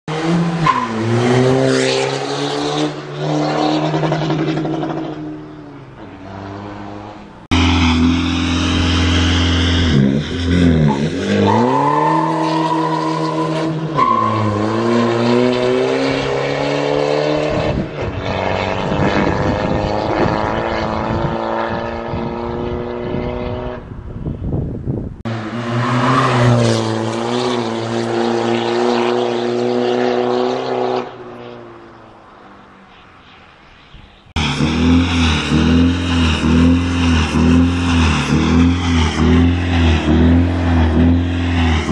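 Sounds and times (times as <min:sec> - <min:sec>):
diesel car engine revving: 0:00.1 - 0:23.9, 0:34.3 - 0:41.9.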